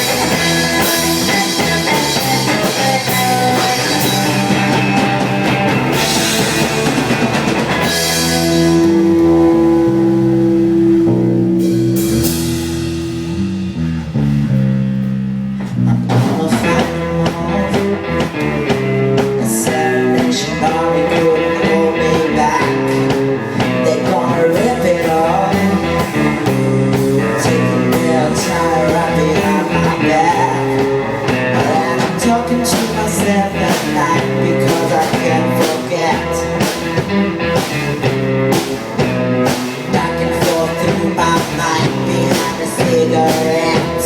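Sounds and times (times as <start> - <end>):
wavering lead line: 0.0 - 14.8
drum kit: 0.0 - 44.0
electric guitar chords: 0.0 - 44.0.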